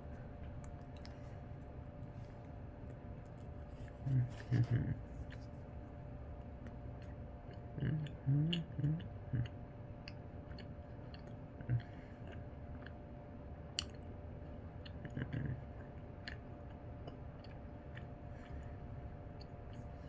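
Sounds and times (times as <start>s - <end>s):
person chewing: 0.0s - 13.0s, 13.8s - 20.0s
mouth clicks and smacks: 13.8s - 14.0s.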